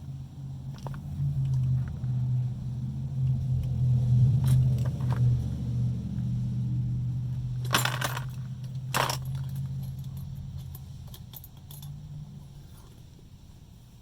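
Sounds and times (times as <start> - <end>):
low engine-like hum: 0.0 - 14.0
small metal objects clinking: 7.6 - 12.0.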